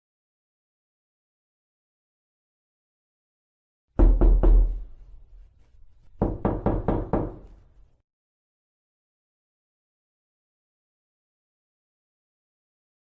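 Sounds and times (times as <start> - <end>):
knocking on wooden door: 4.0 - 4.9, 6.2 - 7.5.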